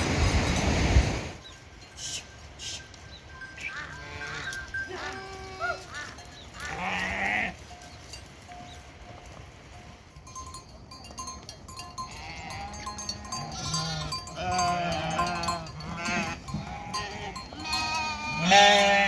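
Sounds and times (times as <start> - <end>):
livestock bleating: 3.7 - 7.6, 12.1 - 19.0.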